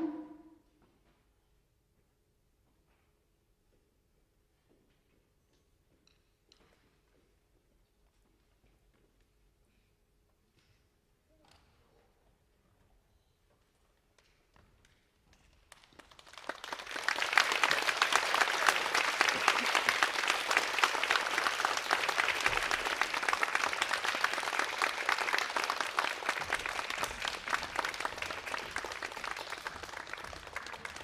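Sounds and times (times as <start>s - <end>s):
audience applauding: 15.7s - 31.0s.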